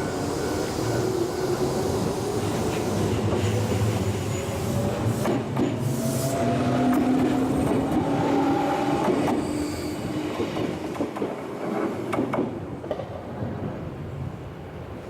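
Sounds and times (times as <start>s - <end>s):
electric train whine: 0.0s - 11.3s.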